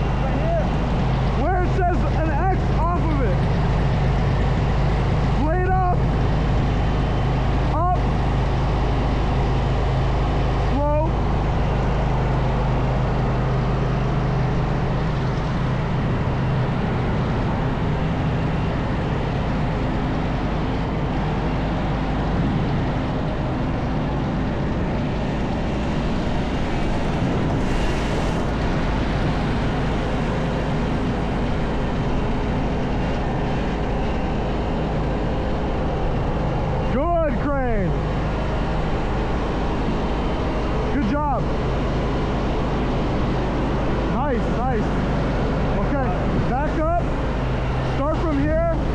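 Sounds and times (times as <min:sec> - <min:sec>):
engine running: 0:00.0 - 0:36.8.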